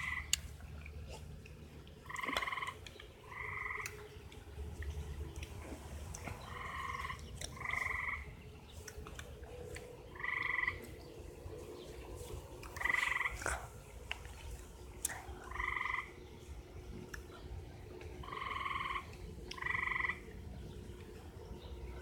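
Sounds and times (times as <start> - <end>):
animal trilling calls: 2.0 - 4.0, 6.4 - 8.3, 10.1 - 10.9, 12.7 - 13.6, 18.2 - 20.3.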